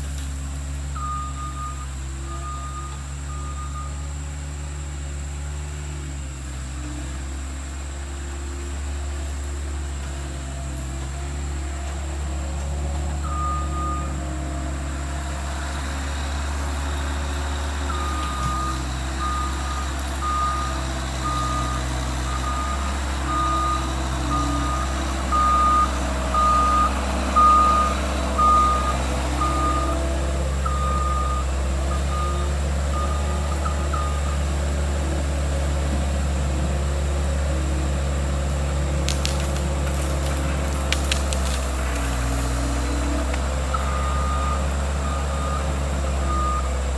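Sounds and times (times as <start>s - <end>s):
engine running: 0.0s - 46.9s
reverse alarm beeping: 0.9s - 4.1s, 13.2s - 14.2s, 17.8s - 34.5s, 43.7s - 46.9s.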